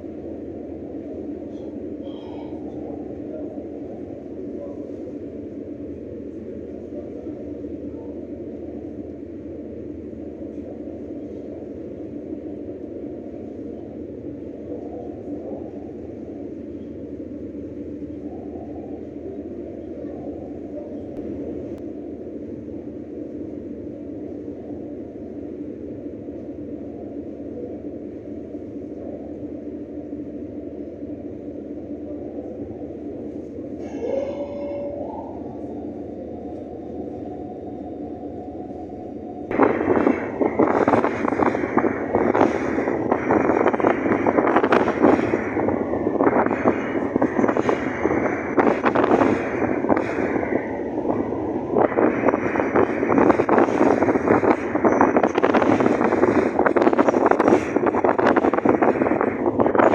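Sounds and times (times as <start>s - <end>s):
ship engines droning: 0.0s - 59.9s
wind buffeting microphone: 35.0s - 59.9s.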